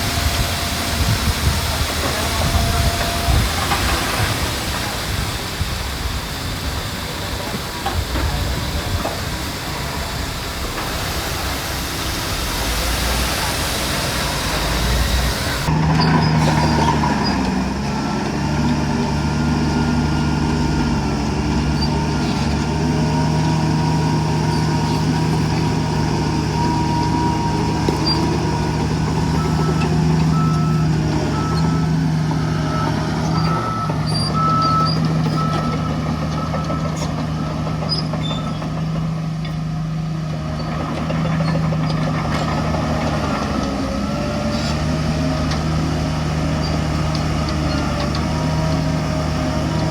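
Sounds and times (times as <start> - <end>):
heavy diesel engine running: 0.0 - 49.9
reversing alarm beeping: 29.2 - 38.6.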